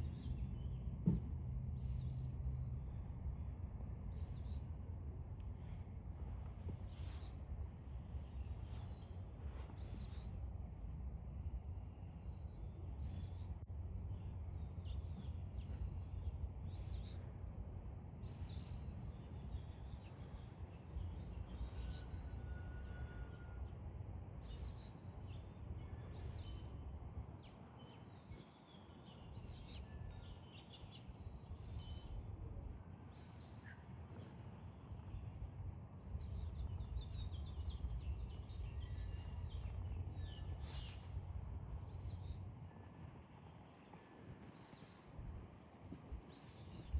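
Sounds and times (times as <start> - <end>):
small birds chirping: 0.0 - 2.4, 4.0 - 4.8, 5.4 - 10.5, 11.4 - 22.2, 24.4 - 42.5, 46.3 - 46.9
steady low rumble: 0.0 - 21.8.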